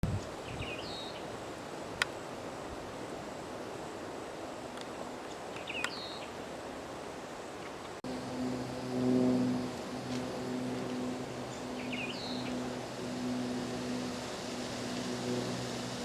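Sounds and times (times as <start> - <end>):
outdoor hiss: 0.2 - 16.0
low steady hum: 8.0 - 16.0.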